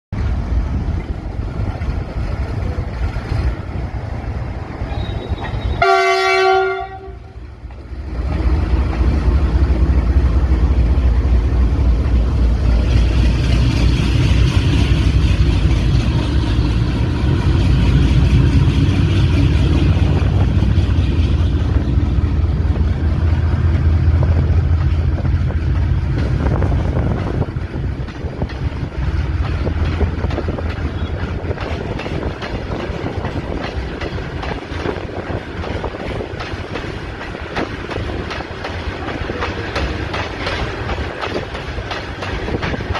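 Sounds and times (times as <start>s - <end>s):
locomotive engine rumble: 0.2s - 42.9s
locomotive horn blast: 4.9s - 7.4s.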